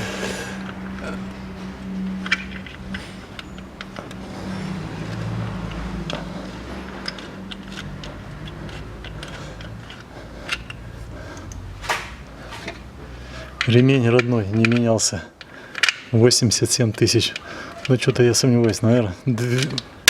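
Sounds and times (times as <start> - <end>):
hand tools clicking on metal: 1.8 - 16.3.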